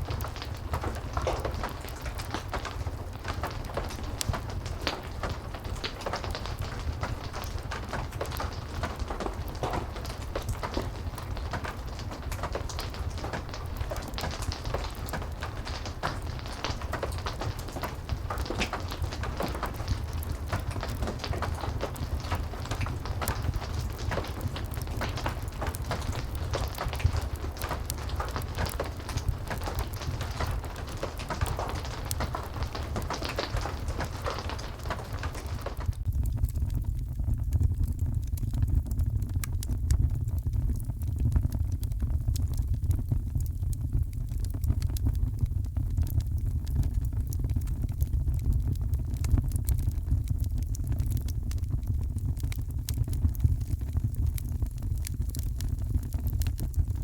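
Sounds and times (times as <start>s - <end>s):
heavy rain hissing: 0.0s - 35.9s
fire crackling: 0.0s - 57.0s.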